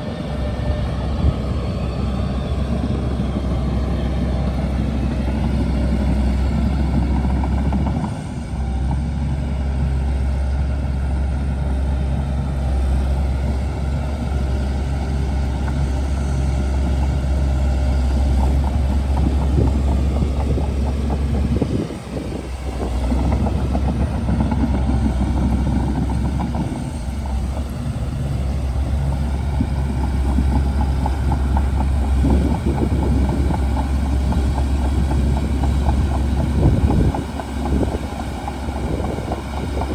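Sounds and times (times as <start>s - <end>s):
bulldozer diesel engine droning: 0.0s - 39.9s.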